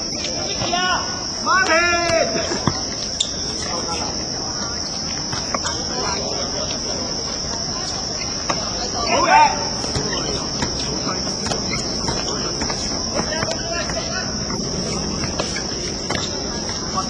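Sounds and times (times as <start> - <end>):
insects droning: 0.0 - 17.0
distant shout: 0.4 - 2.9, 8.8 - 10.5.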